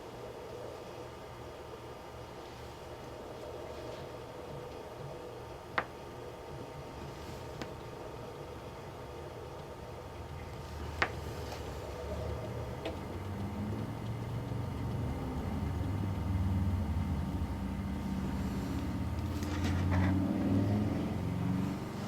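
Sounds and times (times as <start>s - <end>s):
low engine-like rumble: 6.7s - 22.0s.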